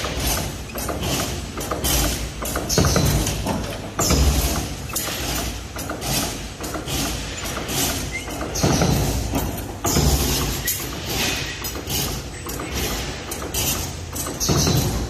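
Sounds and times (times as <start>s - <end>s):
machine thud: 0.0s - 6.0s, 14.3s - 15.0s
bending machine clattering knocks: 0.0s - 15.0s.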